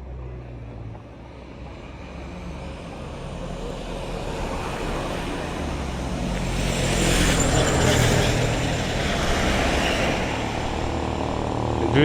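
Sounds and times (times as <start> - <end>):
vehicle engine and tyres passing: 0.0 - 12.0.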